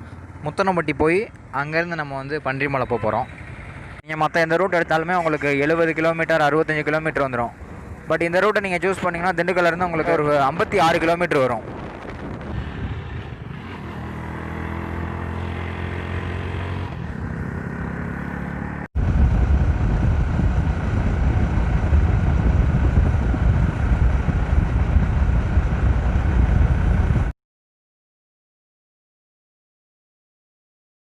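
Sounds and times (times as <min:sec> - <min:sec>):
motorcycle engine running: 0:00.0 - 0:01.5, 0:02.9 - 0:04.0, 0:11.7 - 0:27.3.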